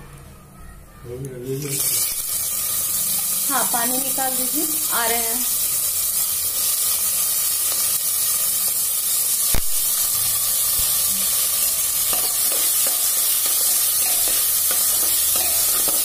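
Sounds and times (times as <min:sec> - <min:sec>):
vegetables sizzling in oil: 0:01.5 - 0:16.0.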